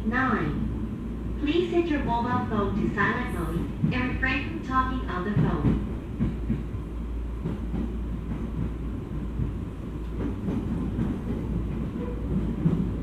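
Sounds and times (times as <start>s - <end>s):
wheels rumbling on rail: 0.0s - 13.0s
train knocks: 3.0s - 13.0s.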